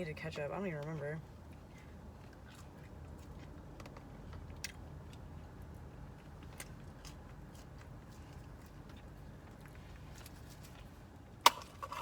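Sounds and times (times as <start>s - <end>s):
person chewing: 1.5s - 10.4s.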